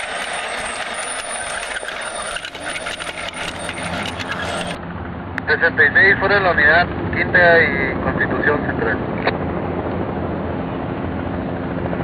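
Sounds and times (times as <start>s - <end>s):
toy train rattling on plastic track: 0.0s - 4.8s.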